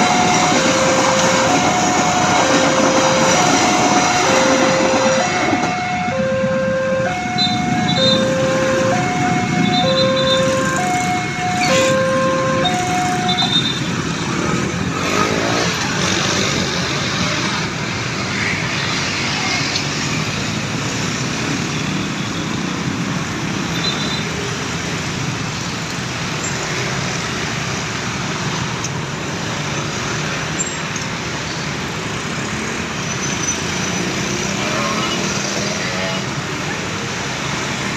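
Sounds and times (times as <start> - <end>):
railroad crossing alarm chime: 0.0 - 14.0
road traffic: 0.0 - 37.9.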